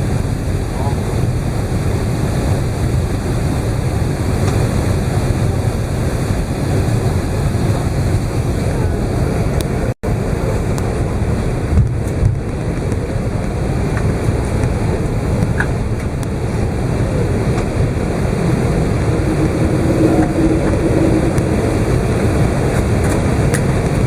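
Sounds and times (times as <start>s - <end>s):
airplane cabin engine rumble: 0.0s - 24.0s.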